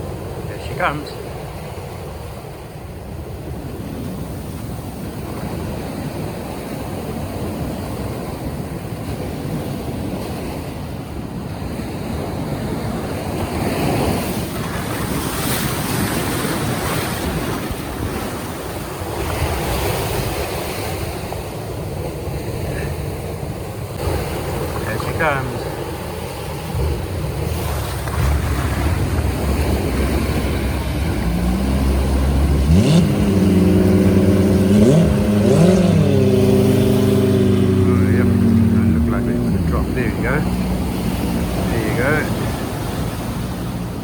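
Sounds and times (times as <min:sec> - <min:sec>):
waves breaking in surf: 0:00.0 - 0:44.0
wind buffeting microphone: 0:23.2 - 0:44.0.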